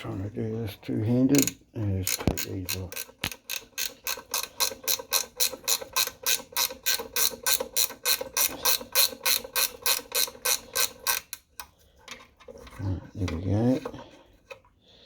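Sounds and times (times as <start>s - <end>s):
ratchet wrench clicking: 1.4s - 11.4s.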